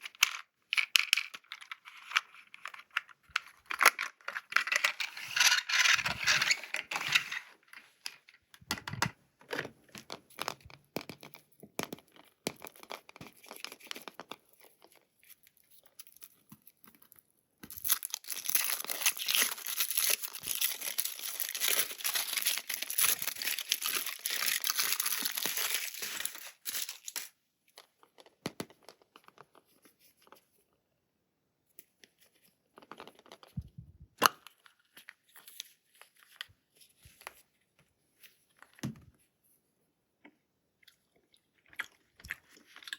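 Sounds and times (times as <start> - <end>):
packaging crinkling and tearing: 17.6 - 27.3.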